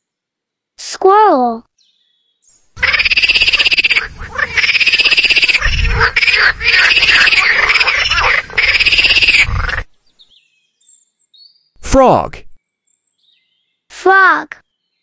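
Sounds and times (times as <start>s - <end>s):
squirrel chattering: 2.8s - 9.9s.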